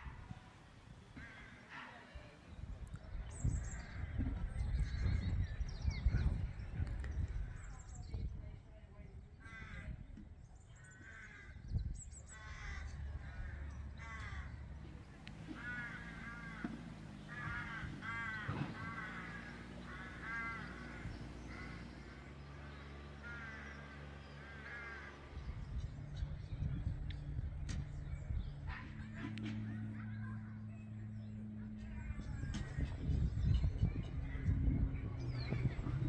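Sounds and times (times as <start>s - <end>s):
crows cawing: 1.2s - 2.0s, 9.4s - 10.0s, 10.8s - 27.8s, 31.6s - 36.0s
low steady rumble: 2.2s - 36.0s.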